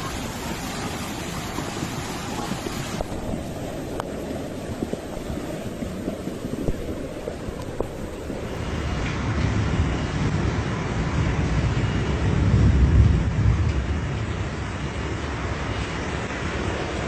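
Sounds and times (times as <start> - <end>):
floodwater rushing: 0.0 - 17.0
wind on microphone: 0.0 - 17.0.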